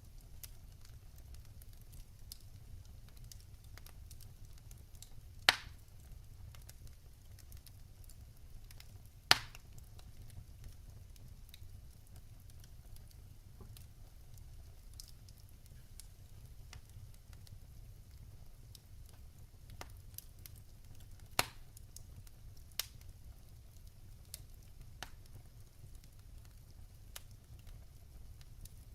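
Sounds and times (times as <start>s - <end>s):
fireplace fire crackling: 0.0s - 28.9s
loud sharp fire pops: 5.5s - 5.8s, 9.3s - 9.7s, 21.3s - 21.6s.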